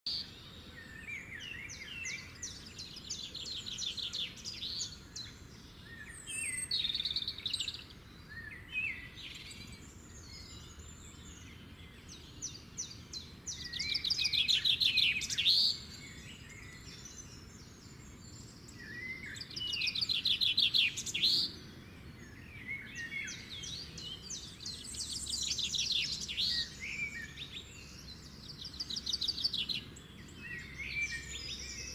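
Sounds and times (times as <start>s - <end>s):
songbirds trilling: 0.1s - 31.9s.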